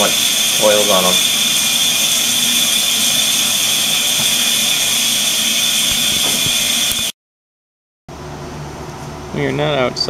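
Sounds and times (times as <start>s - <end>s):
hair dryer whining: 0.0s - 7.1s.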